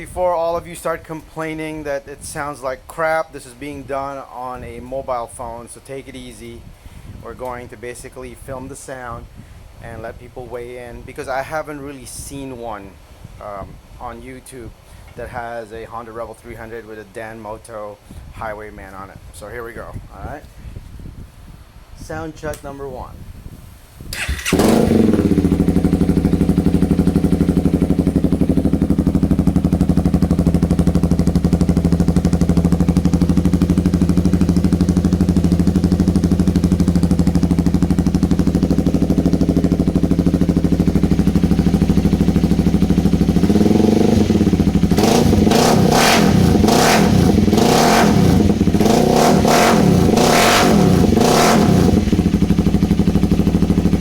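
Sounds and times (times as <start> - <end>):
engine revving in throttle blips: 24.1 - 54.0
motorcycle engine idling: 24.2 - 54.0.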